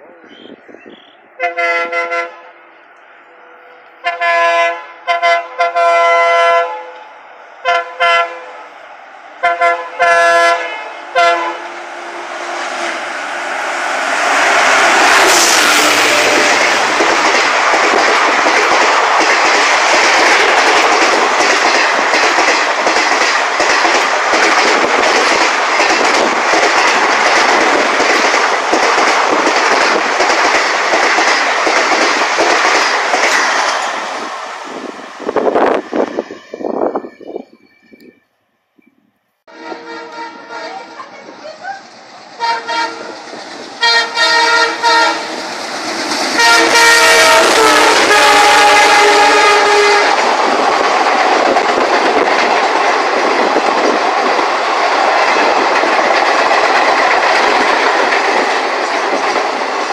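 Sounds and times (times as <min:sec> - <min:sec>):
rush of passing train coaches: 0:00.0 - 0:38.2, 0:39.5 - 0:59.9
train horn blasts: 0:01.4 - 0:02.5, 0:04.0 - 0:08.7, 0:09.4 - 0:12.5, 0:15.0 - 0:16.8, 0:39.5 - 0:41.2, 0:42.4 - 0:43.2, 0:43.8 - 0:45.4, 0:46.4 - 0:50.2.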